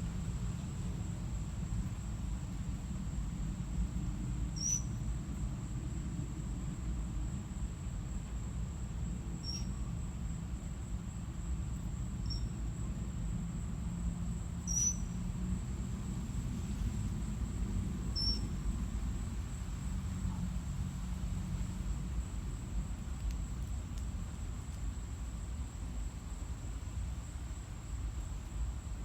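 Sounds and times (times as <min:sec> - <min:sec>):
low outdoor rumble: 0:00.0 - 0:29.0.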